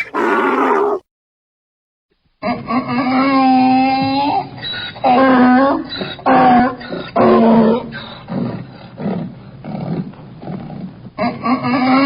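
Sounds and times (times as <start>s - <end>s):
donkey braying: 0.0s - 1.0s
donkey wheezing gasps: 0.0s - 1.0s.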